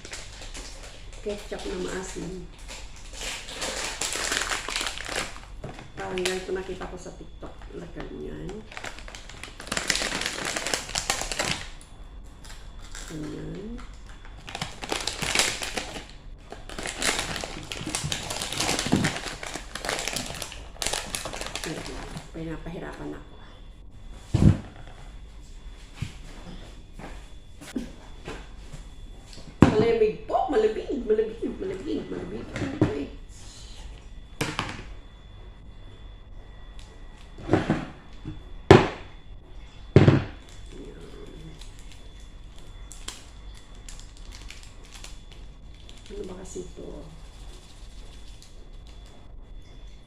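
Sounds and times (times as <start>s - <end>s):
snack packaging crinkling: 0.0s - 6.8s, 7.5s - 22.3s, 40.4s - 49.2s.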